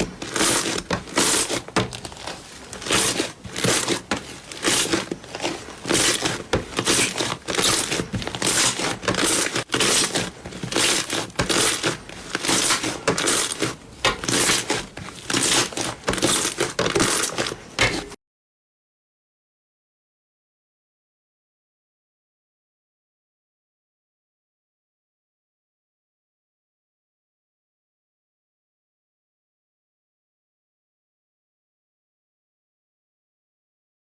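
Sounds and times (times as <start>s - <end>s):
slime squishing and crackling: 0.1s - 18.1s.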